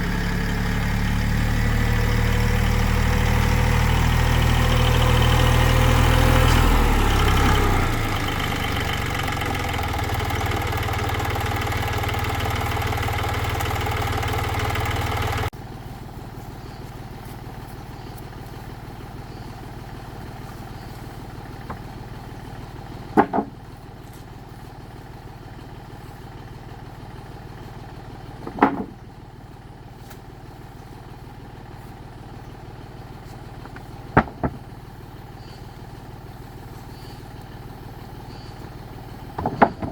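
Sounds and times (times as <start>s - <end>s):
tractor engine running: 0.0s - 39.9s
sharp knocks: 23.2s - 23.6s, 28.4s - 29.0s, 34.2s - 34.6s, 39.4s - 39.9s.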